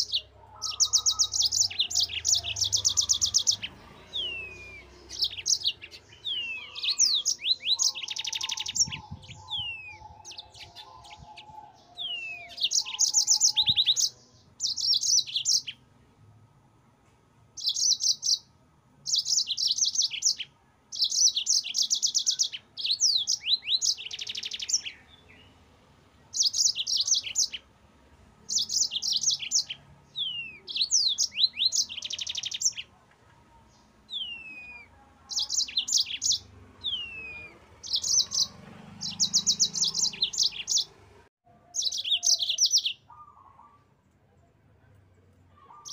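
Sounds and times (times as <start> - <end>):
canary singing trills: 0.0 - 15.8, 17.6 - 25.7, 26.3 - 27.7, 28.4 - 33.0, 33.6 - 44.0, 45.5 - 45.9.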